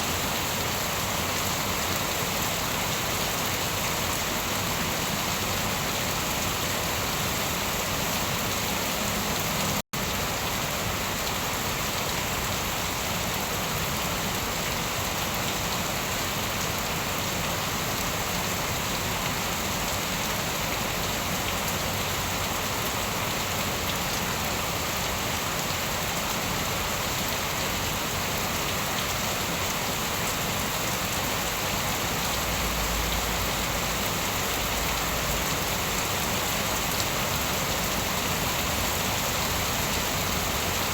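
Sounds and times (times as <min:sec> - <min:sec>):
rain pattering on surfaces: 0:09.0 - 0:40.9.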